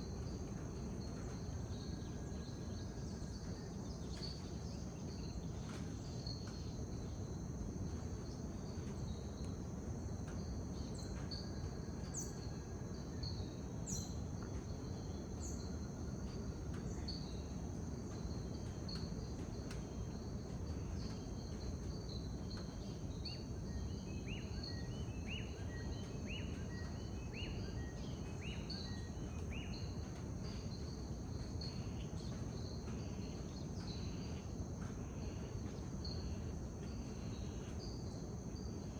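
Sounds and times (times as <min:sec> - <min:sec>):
high insect drone: 0:00.0 - 0:38.9
low background rumble: 0:26.4 - 0:38.9.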